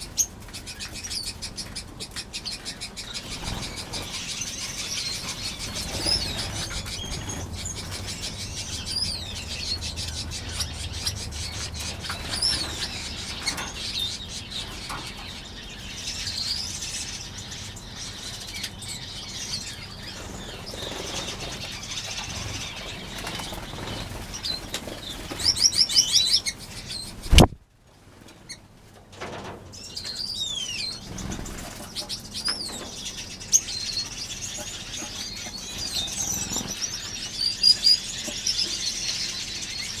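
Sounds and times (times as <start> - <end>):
finches chirping: 0.1 - 27.6
bird wingbeats: 27.1 - 27.6
sharp click: 27.2 - 27.6.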